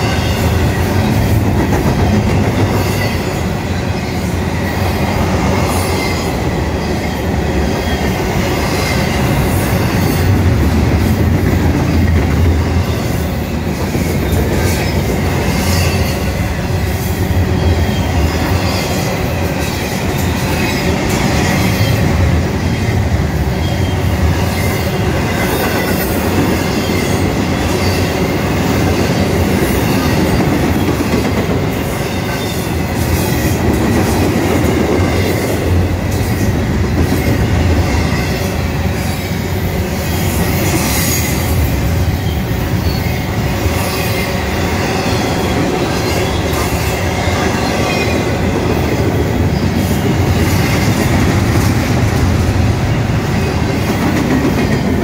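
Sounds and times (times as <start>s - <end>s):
steel wheels rumbling on rails: 0.0s - 55.0s
high wheel squeal: 40.1s - 48.3s.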